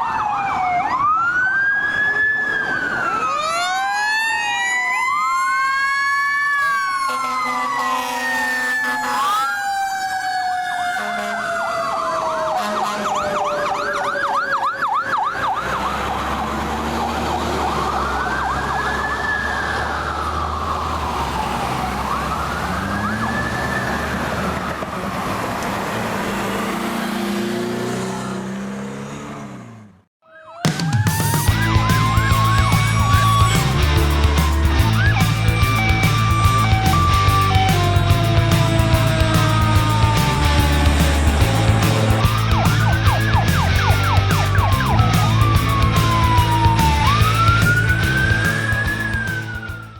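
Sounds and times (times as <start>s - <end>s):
emergency sirens wailing: 0.0s - 49.9s
truck engine rumble: 10.9s - 30.0s, 31.5s - 49.9s.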